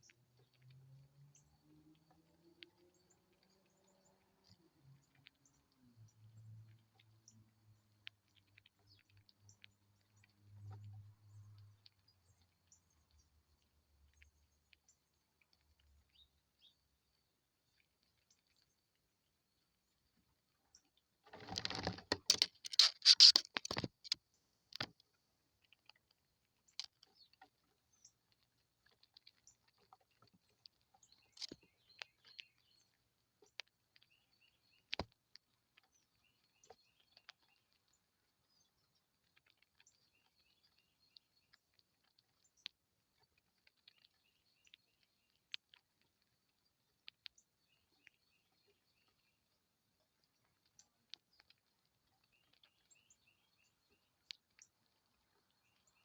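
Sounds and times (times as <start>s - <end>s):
faint clicks and taps: 20.7s - 32.6s, 34.9s - 36.0s
rustling and tapping: 21.3s - 24.2s.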